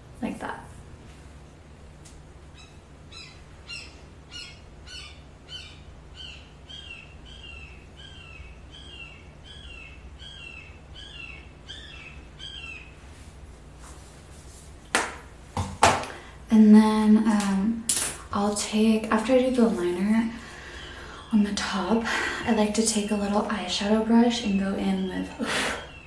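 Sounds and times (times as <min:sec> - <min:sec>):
low steady hum: 0:00.0 - 0:26.0
bird chirping: 0:02.5 - 0:13.0.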